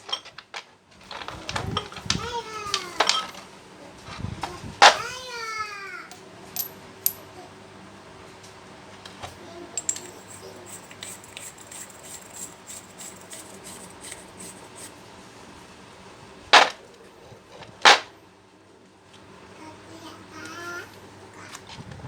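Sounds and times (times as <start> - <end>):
metal tools clinking: 2.7 - 3.4, 6.1 - 7.4, 9.7 - 14.9.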